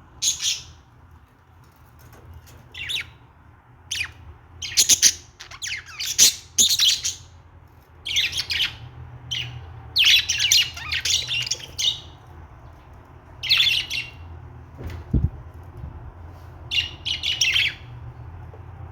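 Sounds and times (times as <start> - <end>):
budgerigars chirping and warbling: 0.2 - 0.8, 2.7 - 3.2, 3.9 - 7.3, 8.0 - 12.2, 13.4 - 14.3, 16.7 - 17.9.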